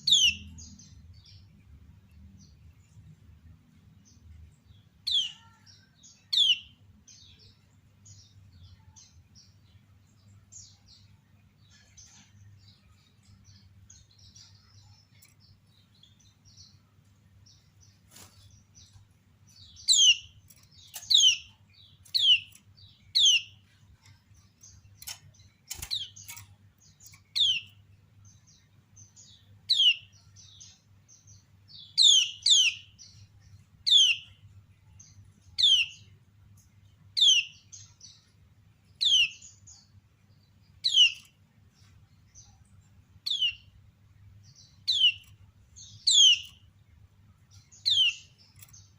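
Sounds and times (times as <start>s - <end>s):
faint bird chirps: 4.0s - 36.2s, 37.2s - 46.7s, 47.4s - 48.9s
bird sharp downward calls: 19.8s - 23.6s, 45.9s - 46.6s.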